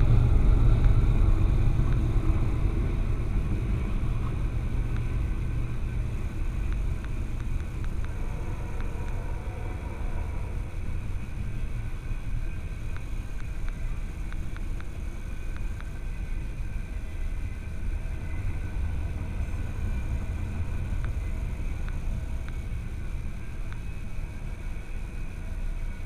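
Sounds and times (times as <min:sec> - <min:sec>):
low vehicle rumble: 0:00.0 - 0:26.0
faint clicks: 0:06.6 - 0:09.8, 0:12.9 - 0:16.1.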